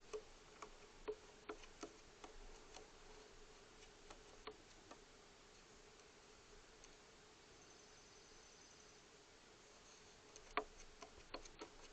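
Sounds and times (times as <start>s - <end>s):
faint steady hum: 0.0s - 11.9s
faint clicks or taps: 10.3s - 11.9s.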